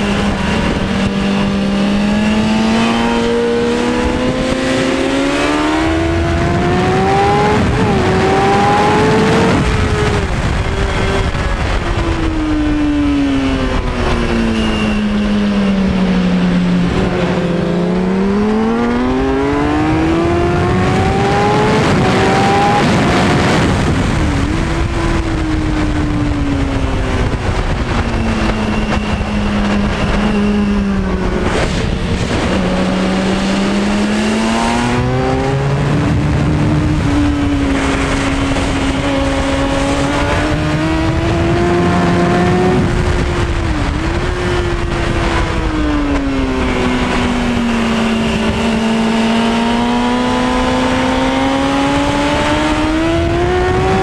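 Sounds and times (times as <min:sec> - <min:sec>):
motorcycle engine revving: 0:00.0 - 0:54.0
wind rush: 0:00.0 - 0:54.0.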